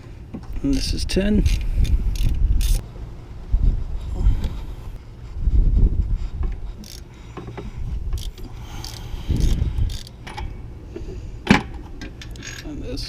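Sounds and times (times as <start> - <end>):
ratchet wrench turning a bolt: 0.6 - 2.8, 6.8 - 7.1, 8.1 - 10.2, 12.2 - 12.8.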